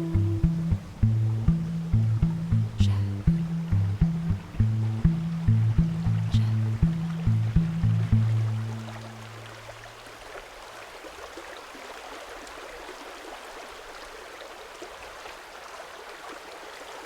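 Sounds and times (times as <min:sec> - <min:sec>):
low music note: 0:00.0 - 0:09.5
stream babbling: 0:00.0 - 0:17.0.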